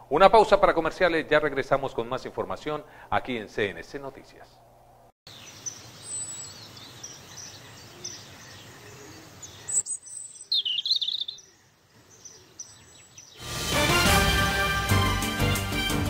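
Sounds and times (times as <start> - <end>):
steady background hiss: 0.0 - 10.6
birds chirping: 4.4 - 13.6
music: 13.4 - 16.0.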